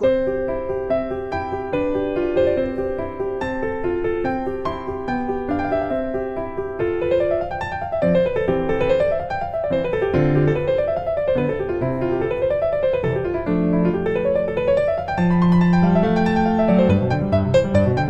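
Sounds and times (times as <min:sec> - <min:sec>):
piano arpeggios: 0:00.0 - 0:18.0.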